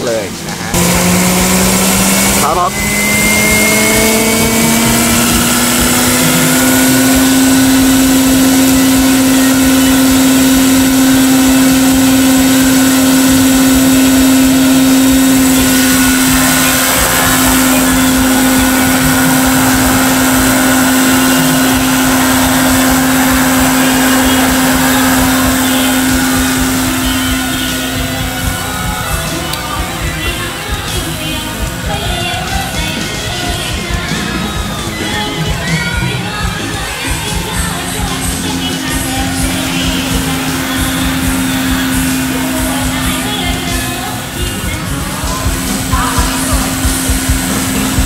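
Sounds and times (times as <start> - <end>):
model helicopter rotor hum: 0.0 - 48.0
faint high electric whine: 0.8 - 31.9.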